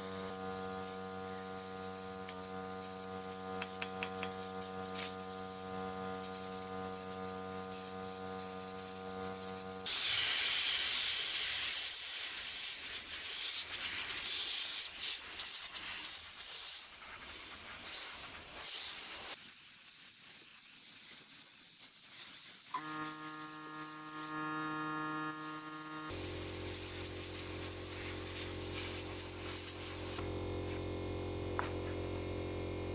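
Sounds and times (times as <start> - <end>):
steady electric hum: 0.0 - 9.9, 22.8 - 32.9
loud spray hiss: 0.0 - 24.3, 25.4 - 30.2.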